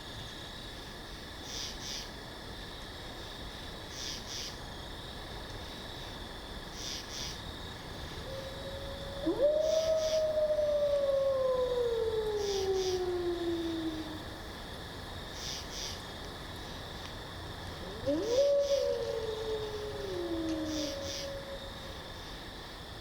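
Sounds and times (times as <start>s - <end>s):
forest background: 0.0s - 23.0s
wolf howling: 8.2s - 14.3s, 17.8s - 22.1s.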